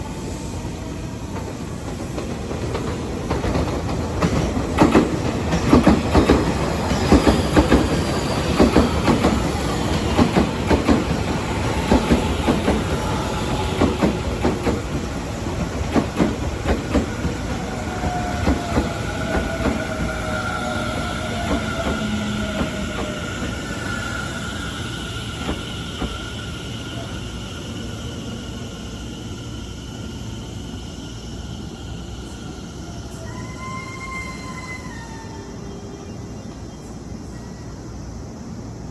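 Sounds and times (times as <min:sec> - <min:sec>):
train wheels clacking over rail joints: 0:01.4 - 0:24.0.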